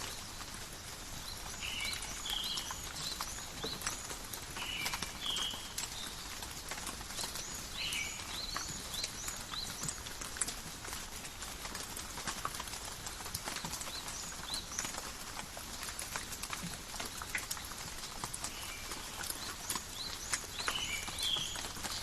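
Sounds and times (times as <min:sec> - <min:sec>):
rain falling on leaves: 0:00.0 - 0:22.0.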